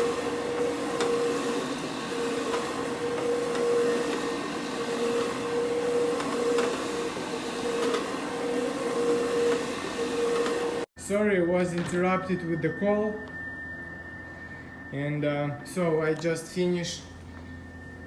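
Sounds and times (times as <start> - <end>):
carpet cleaner motor hum: 0.0 - 10.9.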